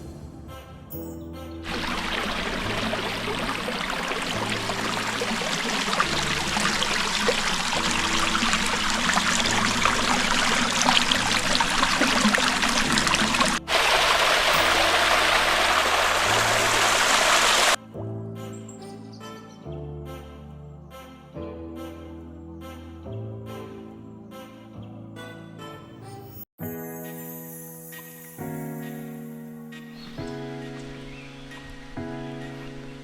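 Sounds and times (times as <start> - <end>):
stream water rushing: 1.6 - 17.8.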